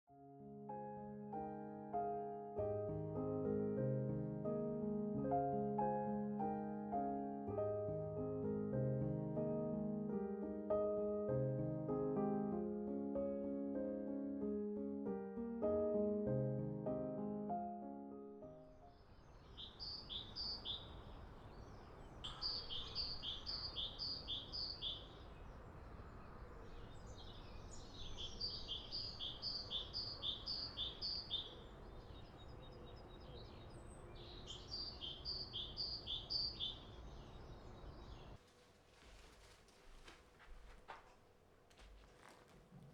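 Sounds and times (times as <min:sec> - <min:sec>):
soft piano music: 0:00.1 - 0:38.4
outdoor background hiss: 0:18.6 - 0:42.9
songbird singing: 0:18.8 - 0:41.0.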